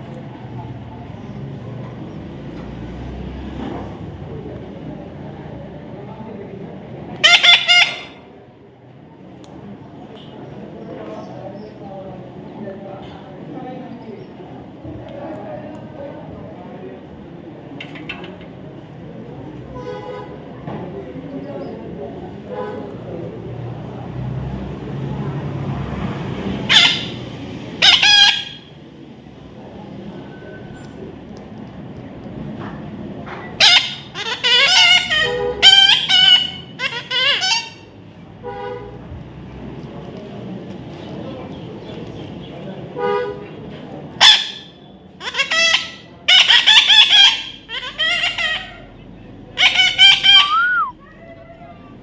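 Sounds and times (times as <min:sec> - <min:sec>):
harsh bird calls: 0:07.2 - 0:08.2, 0:26.6 - 0:28.7, 0:33.6 - 0:37.9, 0:44.2 - 0:52.0
parrot squawking: 0:07.2 - 0:08.2, 0:26.6 - 0:27.2, 0:27.8 - 0:28.7, 0:33.6 - 0:37.9, 0:44.2 - 0:49.0, 0:49.6 - 0:51.9.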